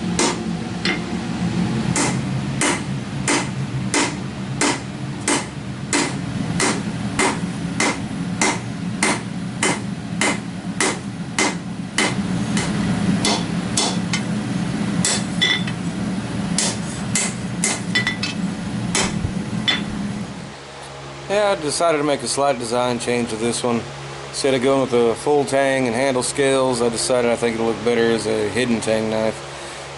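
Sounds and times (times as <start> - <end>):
steady low drone: 0.0 - 29.9
hammer blows on steel anvil: 2.0 - 14.3.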